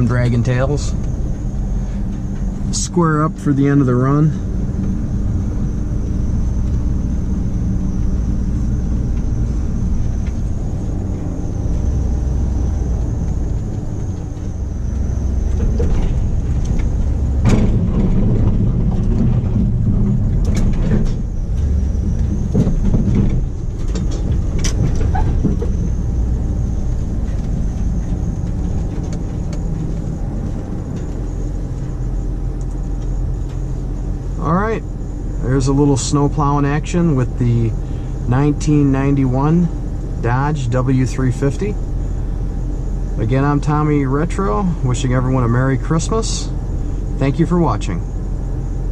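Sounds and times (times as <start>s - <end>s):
pickup truck engine running: 0.0s - 48.9s
sharp knocks and clatters: 15.5s - 25.8s.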